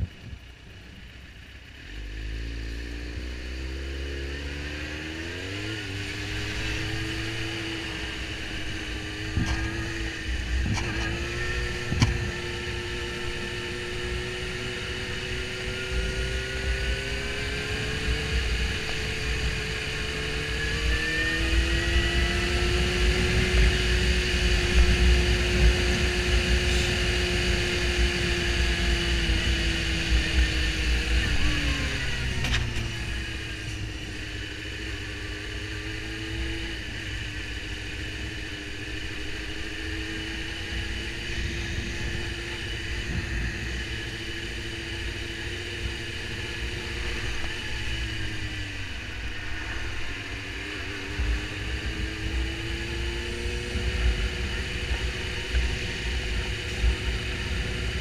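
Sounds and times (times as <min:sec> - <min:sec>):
wind noise on microphone: 0:00.0 - 0:00.4, 0:09.0 - 0:12.7, 0:40.8 - 0:58.0
motorcycle engine revving: 0:00.0 - 0:58.0.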